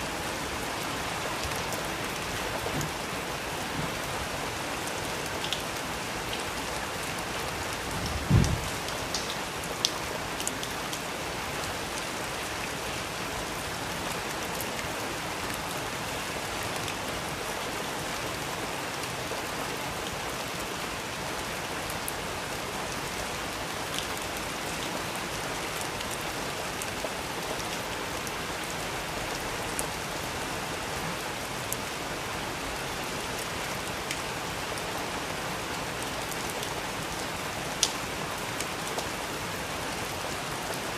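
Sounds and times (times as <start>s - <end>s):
steady rain falling: 0.0s - 40.9s
low thump: 8.2s - 8.7s.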